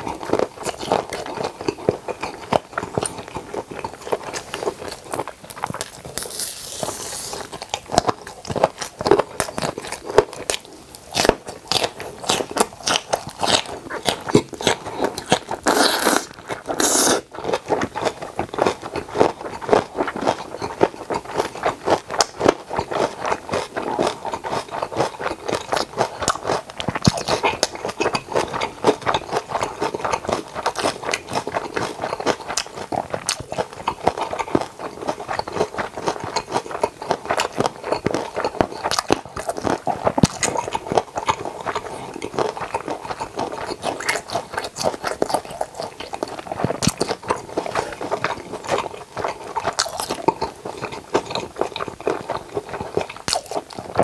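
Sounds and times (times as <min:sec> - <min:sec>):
wet crunching chewing: 0:00.0 - 0:54.0
mouth clicks: 0:11.2 - 0:17.3.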